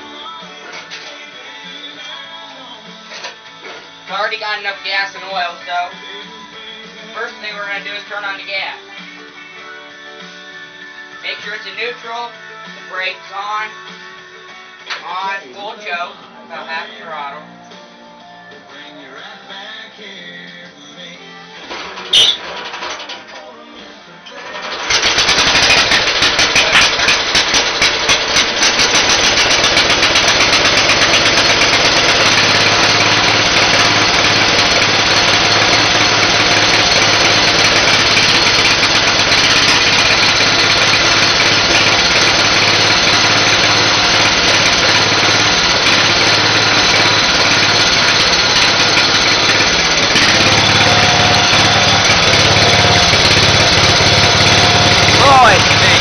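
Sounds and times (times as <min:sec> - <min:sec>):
tractor engine starting and running: 0:00.0 - 0:09.6, 0:21.5 - 0:56.0.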